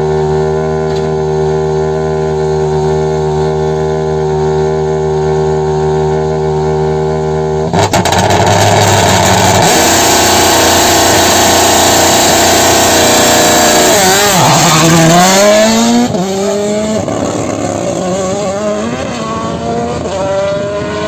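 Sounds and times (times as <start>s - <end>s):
car engine revving: 0.0s - 21.0s
sharp exhaust cracks: 7.7s - 15.2s.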